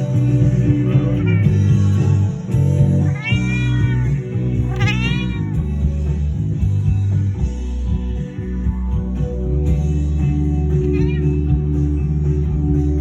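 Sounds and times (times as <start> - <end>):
loud bass and guitar music: 0.0 - 13.0
cat meowing: 3.0 - 5.7, 10.9 - 11.4.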